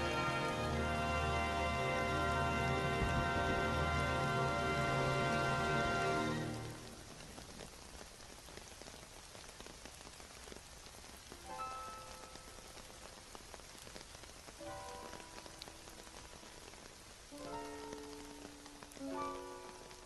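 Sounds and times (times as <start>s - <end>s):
soft music held notes: 0.0s - 7.2s, 14.6s - 20.0s
rain falling on a surface: 0.0s - 20.0s.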